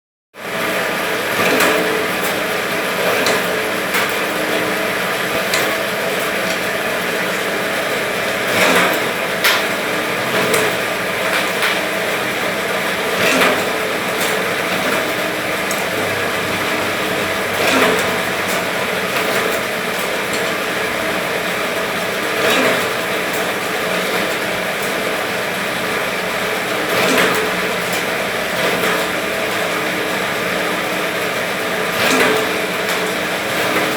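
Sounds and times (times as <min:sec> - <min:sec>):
machine clack: 0:00.6 - 0:31.2, 0:31.8 - 0:33.9
machine humming: 0:02.0 - 0:22.5.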